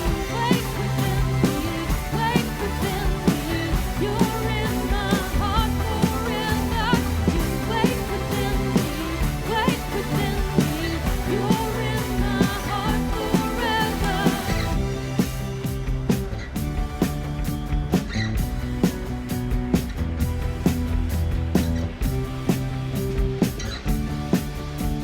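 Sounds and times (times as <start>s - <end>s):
worship song by live band: 0.0s - 15.4s
steady drum beat: 0.0s - 25.0s.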